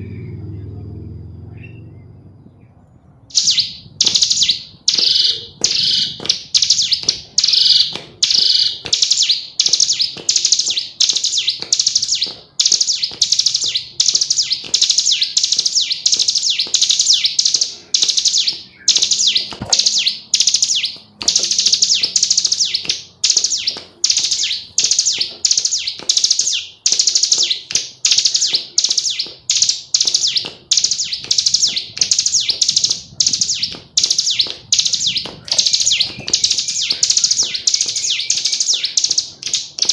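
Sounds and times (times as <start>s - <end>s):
bird calling high short notes: 3.3s - 33.7s.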